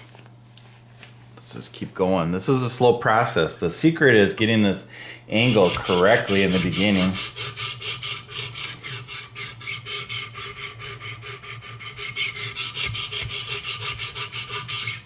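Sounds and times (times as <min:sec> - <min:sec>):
sharpening stones rasping on knife: 0:05.4 - 0:15.0.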